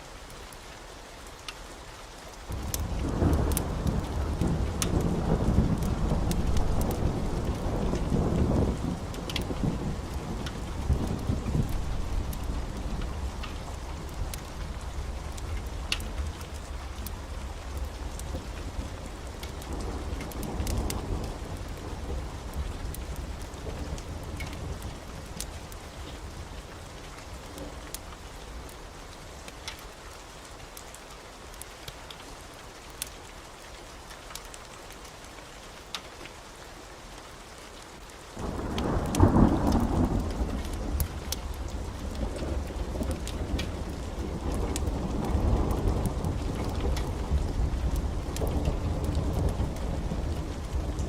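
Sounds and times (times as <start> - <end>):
heavy rain: 0.0 - 51.0
thunder rumbling: 2.5 - 26.5, 38.4 - 51.0
loud thunderclap: 38.4 - 41.2, 41.9 - 51.0.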